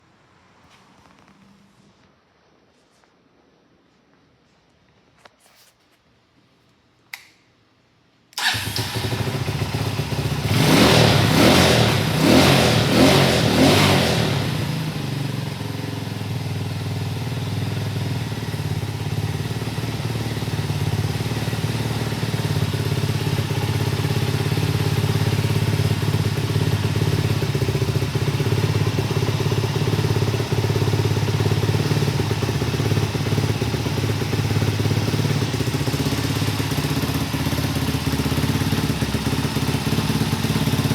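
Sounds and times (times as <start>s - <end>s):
motorcycle engine starting and revving: 8.4s - 40.9s.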